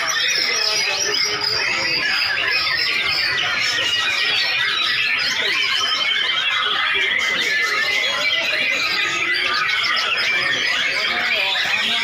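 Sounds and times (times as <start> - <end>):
many birds singing whistled phrases: 0.0 - 12.0.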